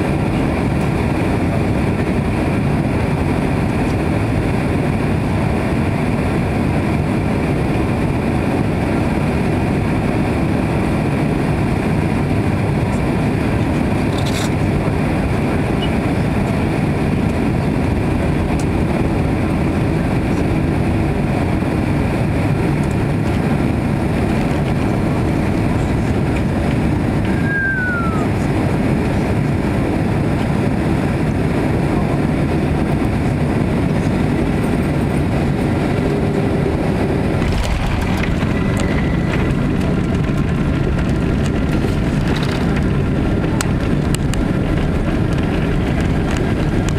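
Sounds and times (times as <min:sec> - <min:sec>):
jet engines rumbling: 0:00.0 - 0:46.9.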